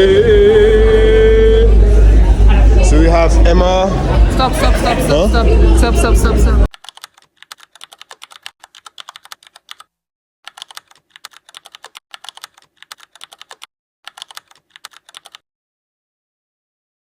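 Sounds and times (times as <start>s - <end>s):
rapid even clicking: 6.7s - 9.9s, 10.5s - 15.4s.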